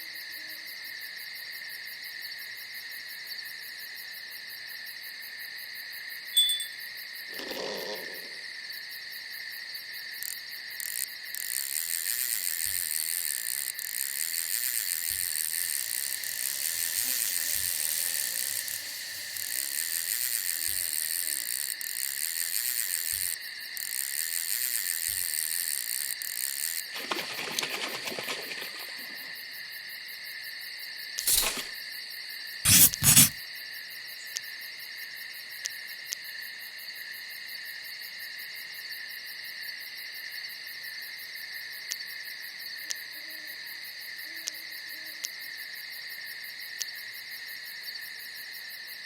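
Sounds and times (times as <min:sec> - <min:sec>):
night insects chirring: 0:00.1 - 0:31.8.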